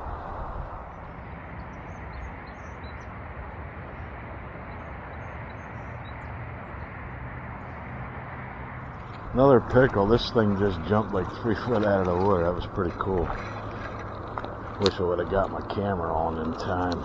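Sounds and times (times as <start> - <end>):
low rushing background noise: 0.0 - 17.0.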